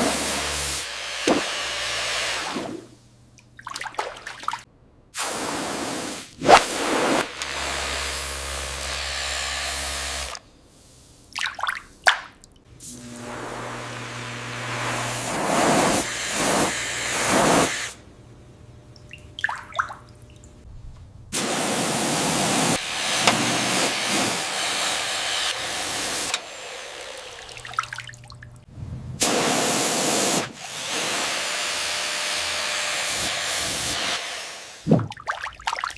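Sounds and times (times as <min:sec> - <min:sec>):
water sprayer hissing: 0:00.0 - 0:03.0, 0:05.2 - 0:08.8, 0:12.7 - 0:18.0, 0:21.4 - 0:28.1, 0:29.2 - 0:35.0.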